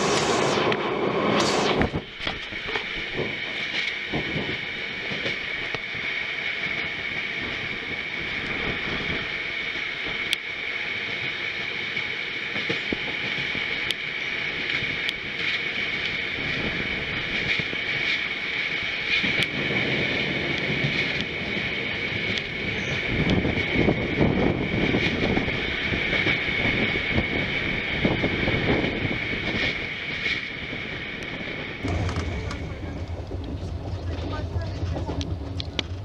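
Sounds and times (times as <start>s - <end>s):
train wheels rolling on rails: 0.0s - 36.0s
sharp clicks from track: 31.8s - 33.6s.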